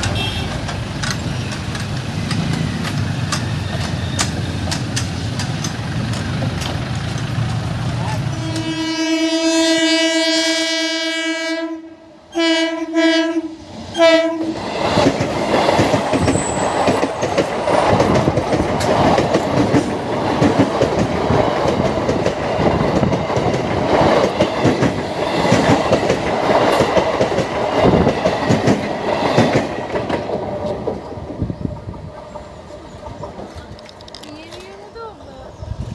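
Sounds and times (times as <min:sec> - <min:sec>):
train horn: 0:00.0 - 0:00.6, 0:08.3 - 0:14.6
wheels clacking over rail joints: 0:00.0 - 0:09.0, 0:14.6 - 0:35.3
train coaches rumbling: 0:00.0 - 0:35.9.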